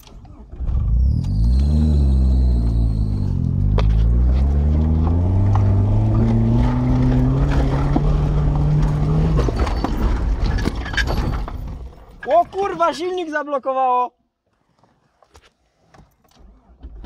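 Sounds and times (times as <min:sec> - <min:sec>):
car engine running under load: 0:00.0 - 0:10.6.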